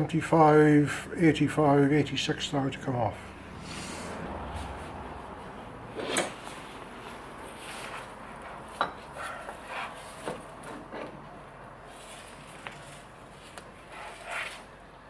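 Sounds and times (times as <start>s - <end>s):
metal scraping and rubbing: 13.8s - 14.7s.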